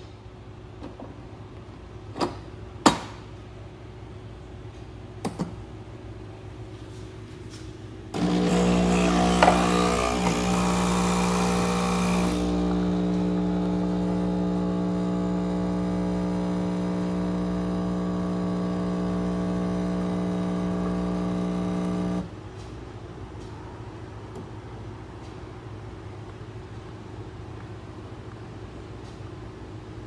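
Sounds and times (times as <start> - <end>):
espresso machine pump buzzing: 8.1 - 22.3.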